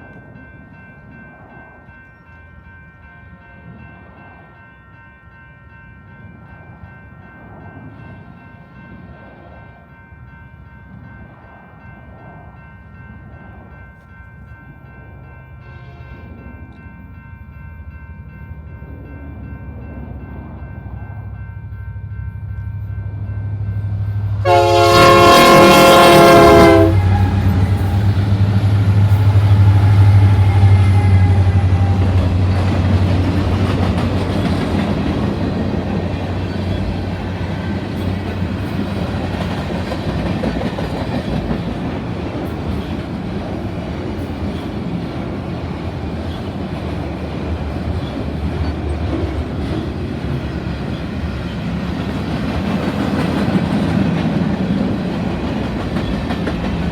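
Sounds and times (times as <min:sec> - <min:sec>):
locomotive engine drone: 0:18.2 - 0:39.8
locomotive horn chord blast: 0:24.0 - 0:32.2.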